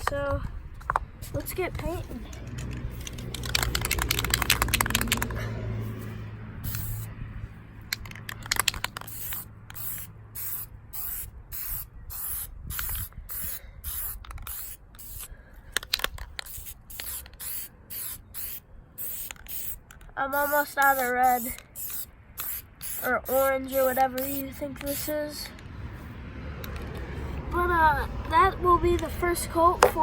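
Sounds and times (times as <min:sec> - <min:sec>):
spray can rattling: 0:02.3 - 0:05.4, 0:06.6 - 0:07.1, 0:07.9 - 0:25.5
spray paint can hissing: 0:02.6 - 0:07.1, 0:07.9 - 0:26.1.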